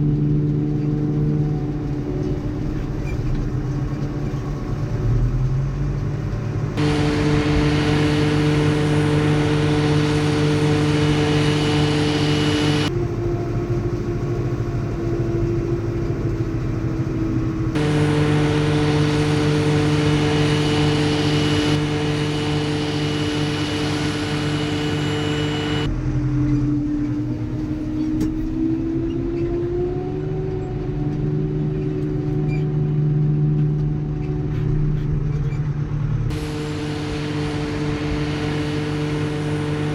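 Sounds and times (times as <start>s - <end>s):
diesel farm machinery running: 5.9s - 13.3s, 16.1s - 25.9s, 35.7s - 39.9s.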